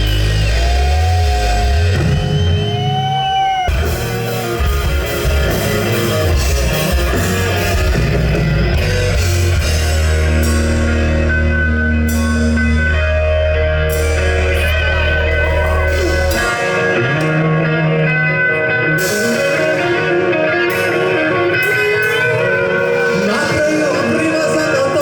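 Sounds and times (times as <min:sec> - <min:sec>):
rock band playing: 0:00.0 - 0:25.0
heavy low bass note: 0:04.1 - 0:17.2.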